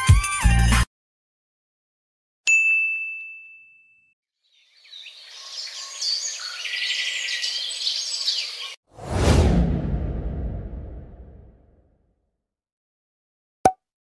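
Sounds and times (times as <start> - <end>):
birds chirping and singing: 4.4 - 8.8.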